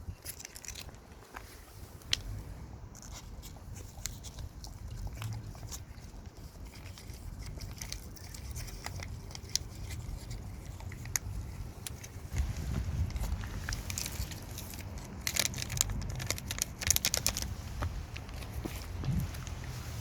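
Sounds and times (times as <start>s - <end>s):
dog chewing with crunching clicks: 0.2s - 1.4s, 3.0s - 19.6s
steady low rumble: 9.1s - 20.0s.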